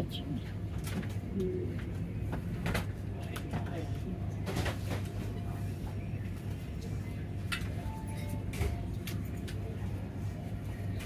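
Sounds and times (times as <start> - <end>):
train coach low hum: 0.0 - 11.0.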